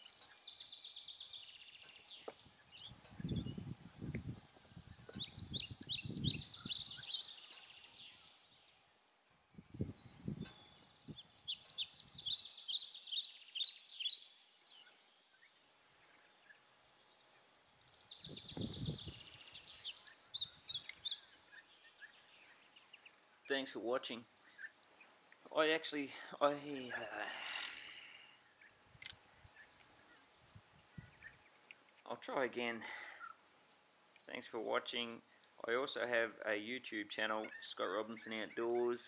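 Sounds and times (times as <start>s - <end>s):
birds chirping: 0.0s - 39.0s
low muffled microphone rumbles: 2.9s - 6.9s, 9.5s - 11.3s, 18.2s - 19.3s.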